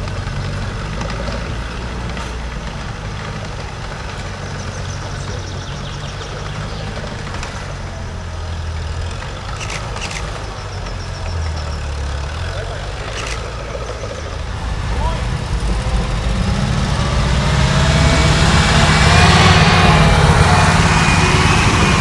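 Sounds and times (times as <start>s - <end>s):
engine running at low revs: 0.0s - 22.0s
sharp clicks: 9.4s - 11.6s, 12.9s - 14.2s.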